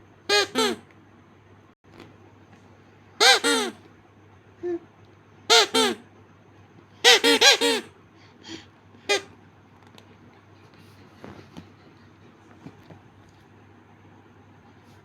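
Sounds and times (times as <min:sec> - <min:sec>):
parrot squawking: 0:03.2 - 0:03.8, 0:07.0 - 0:07.9.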